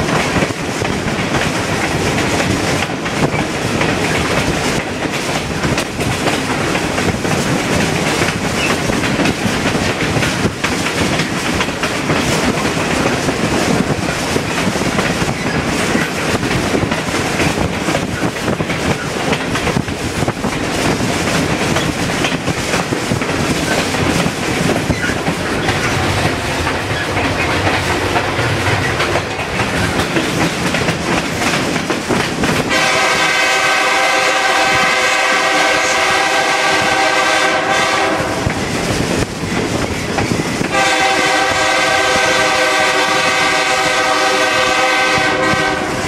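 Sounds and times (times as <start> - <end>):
train wheels rumbling on rails: 0.0 - 46.0
locomotive horn: 32.7 - 38.5, 40.7 - 46.0.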